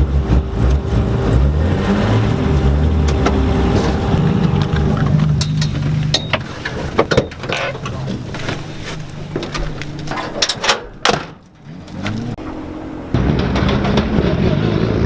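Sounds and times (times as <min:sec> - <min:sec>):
car engine running: 0:00.0 - 0:15.0
sharp knocks and rattles: 0:03.0 - 0:12.4, 0:13.2 - 0:14.8.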